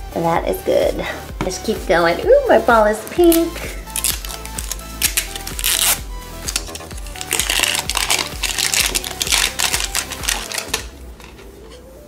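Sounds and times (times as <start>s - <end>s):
plastic wrap crinkling: 3.2s - 11.9s.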